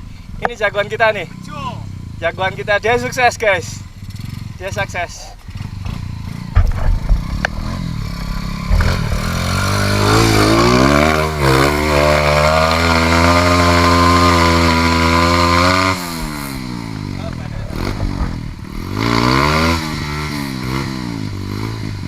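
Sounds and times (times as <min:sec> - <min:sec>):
dirt bike engine revving: 0:00.4 - 0:22.0
sharp knocks: 0:05.8 - 0:10.1.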